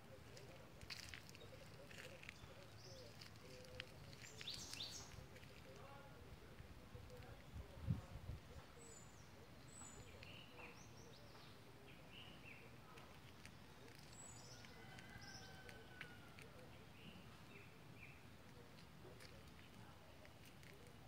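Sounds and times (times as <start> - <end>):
low outdoor hiss: 0.0 - 21.0.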